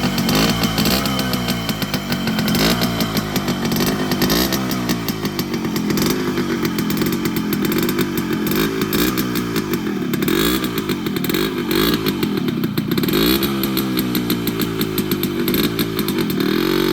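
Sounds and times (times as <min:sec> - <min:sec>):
two-stroke engine revving: 0:00.0 - 0:16.9.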